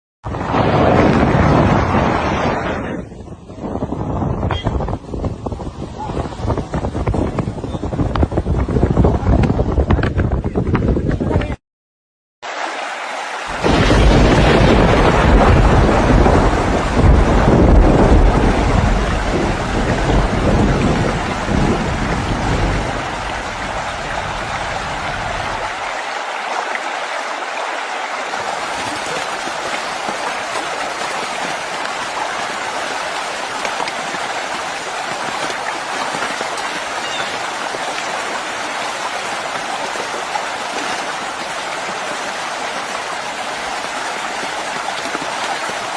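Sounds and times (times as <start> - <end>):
heavy rain: 12.4 - 45.9
deep loud rumble: 13.6 - 25.6.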